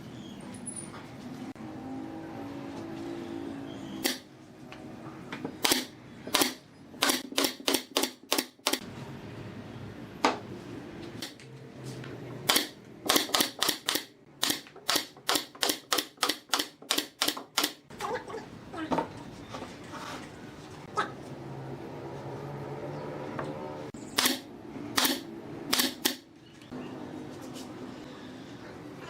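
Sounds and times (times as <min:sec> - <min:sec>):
pneumatic nailer firing into wood: 0:04.0 - 0:04.3, 0:05.6 - 0:08.8, 0:12.5 - 0:17.8, 0:24.2 - 0:26.2.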